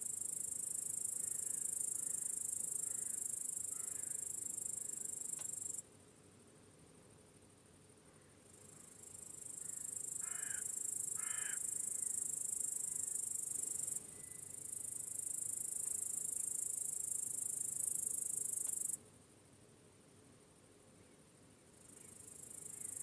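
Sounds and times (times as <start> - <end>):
crickets chirping: 0.0 - 6.5, 7.2 - 23.0
crow cawing: 2.8 - 4.2, 10.2 - 11.7.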